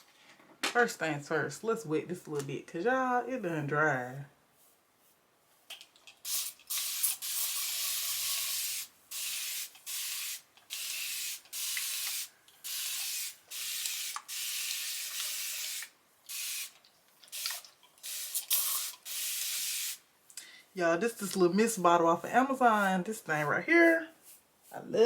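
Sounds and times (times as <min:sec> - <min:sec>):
spray bottle hissing: 0:06.2 - 0:20.0.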